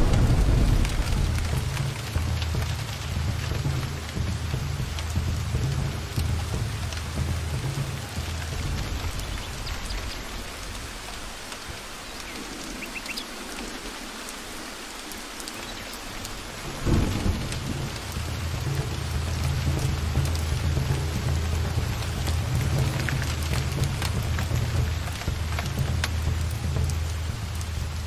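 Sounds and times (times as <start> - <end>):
loud thunder crack: 0.0 - 4.3, 16.7 - 24.4
low rolling thunder: 0.0 - 12.8, 16.3 - 28.0
steady rain in forest: 0.0 - 28.0.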